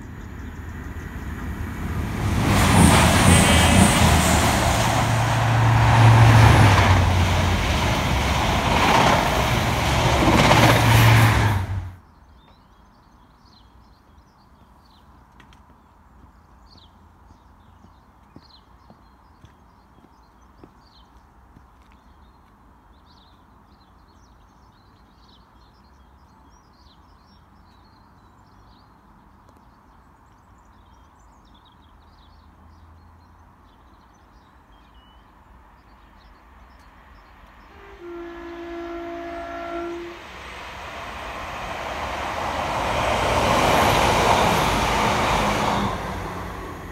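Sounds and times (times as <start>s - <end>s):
train engine and wheels passing: 0.0s - 12.0s, 35.4s - 46.9s
faint birdsong: 12.0s - 46.9s
train horn blast: 37.6s - 41.4s.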